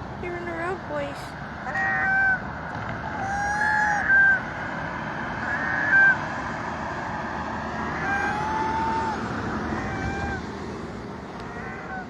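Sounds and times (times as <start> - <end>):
steady background noise: 0.0 - 12.0
birds calling: 1.4 - 12.0.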